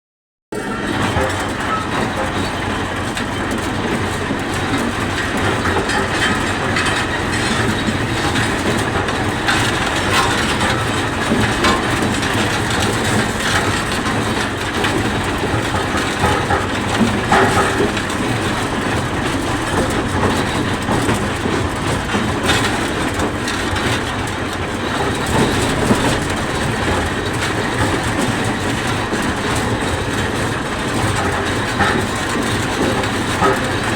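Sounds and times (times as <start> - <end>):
road roller diesel engine: 0.5 - 33.9.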